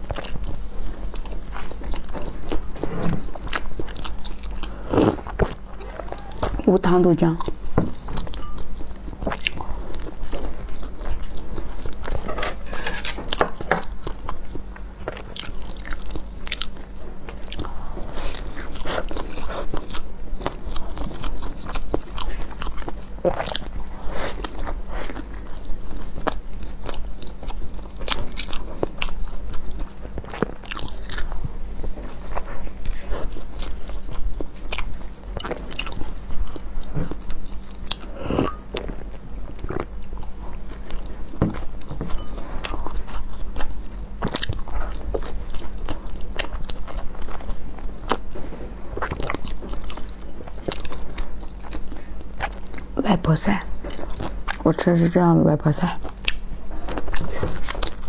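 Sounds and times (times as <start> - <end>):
person chewing with mouth clicks: 0.0 - 53.0, 53.7 - 54.7, 55.9 - 58.0
steady low hum: 0.0 - 58.0.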